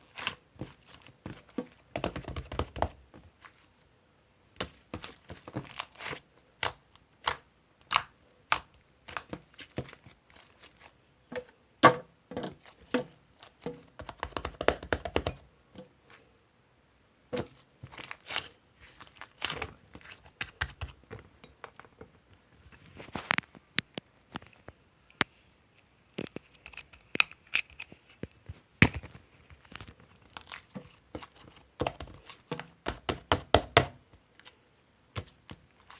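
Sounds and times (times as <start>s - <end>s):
crinkling and tearing: 4.7s - 11.0s, 17.4s - 21.1s, 26.1s - 32.7s, 35.2s - 35.9s.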